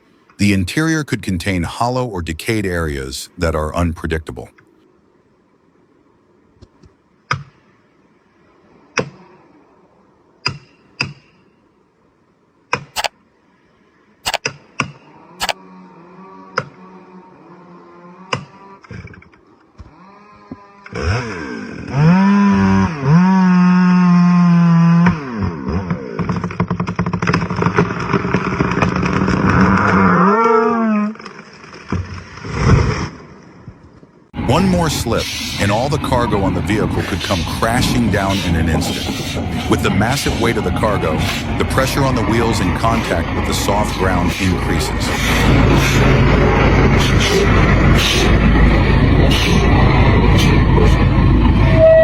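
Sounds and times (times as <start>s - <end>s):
chainsaw engine cutting wood: 19.8s - 30.0s, 35.6s - 51.1s.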